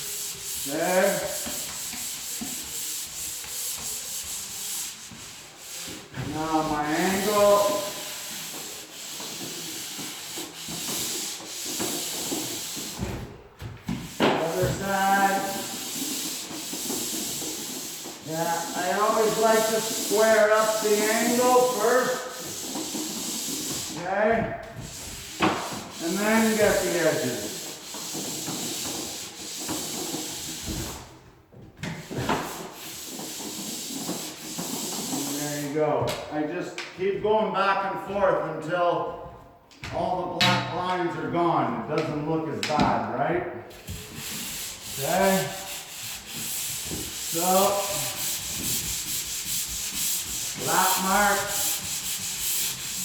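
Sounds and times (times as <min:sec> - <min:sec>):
sandpaper scraping: 0:00.0 - 0:13.0, 0:14.0 - 0:24.0, 0:24.8 - 0:31.0, 0:32.0 - 0:35.8, 0:43.8 - 0:53.0.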